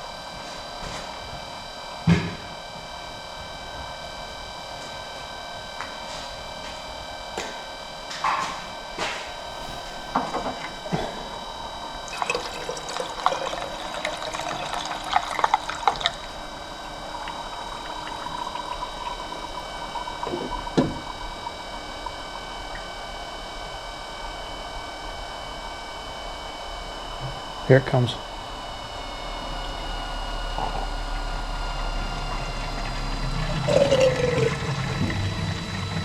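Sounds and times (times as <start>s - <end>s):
electric water pump whine: 0.0s - 36.0s
water gurgling and splashing: 9.5s - 24.4s, 28.2s - 36.0s.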